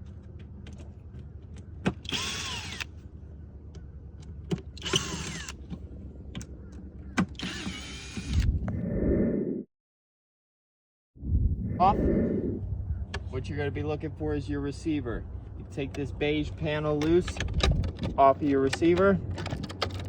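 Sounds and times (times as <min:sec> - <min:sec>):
power drill whirring: 0:02.0 - 0:02.9, 0:04.8 - 0:05.6, 0:07.3 - 0:08.5
steady low hum: 0:11.2 - 0:18.4.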